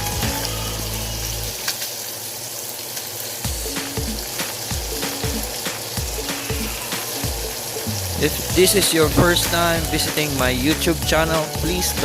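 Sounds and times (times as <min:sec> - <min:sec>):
background music with bass: 0:00.0 - 0:01.6, 0:04.8 - 0:12.0
chicken skins sizzling in pan: 0:00.0 - 0:12.0.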